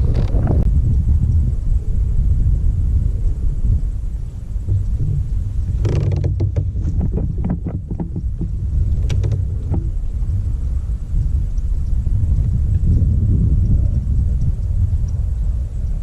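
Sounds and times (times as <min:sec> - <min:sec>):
kayak low rumble: 0:00.0 - 0:16.0
knocks and clicks: 0:04.7 - 0:10.0.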